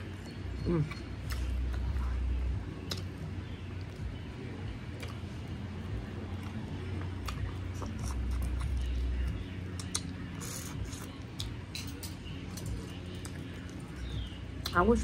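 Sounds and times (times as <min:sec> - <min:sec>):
chewing and wet mouth clicks: 0:02.8 - 0:03.2, 0:04.9 - 0:05.2, 0:06.3 - 0:08.9, 0:09.7 - 0:14.8.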